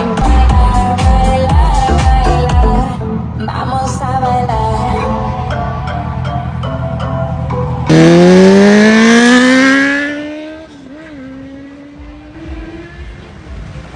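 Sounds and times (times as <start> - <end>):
background music: 0.0 - 10.4
vehicle accelerating hard: 7.8 - 13.9.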